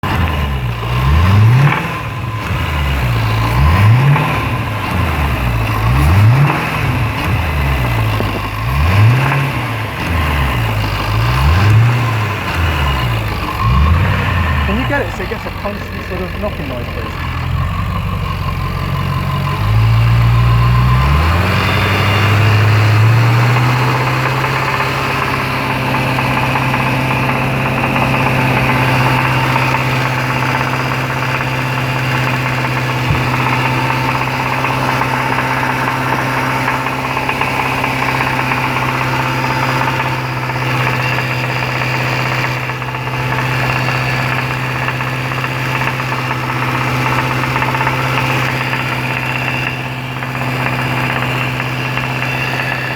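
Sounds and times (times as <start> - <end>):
car engine revving: 0.0 - 52.9
engine rod knock: 23.3 - 52.9.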